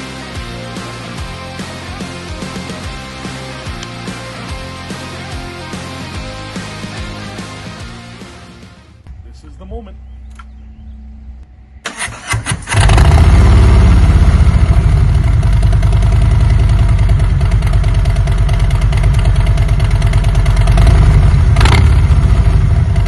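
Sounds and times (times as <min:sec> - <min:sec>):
motorcycle engine idling: 0:10.0 - 0:23.0
engine starter cranking: 0:11.8 - 0:13.3.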